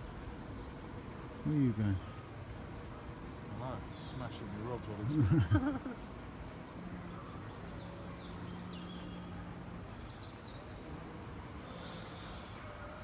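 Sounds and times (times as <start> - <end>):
outdoor background noise: 0.0 - 13.0
songbird high chirps: 3.0 - 10.8.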